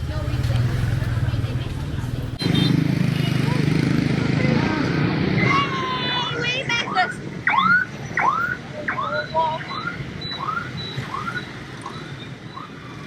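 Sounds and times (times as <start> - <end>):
street traffic: 0.0 - 13.0
electronic alarm siren chirping: 6.8 - 13.0.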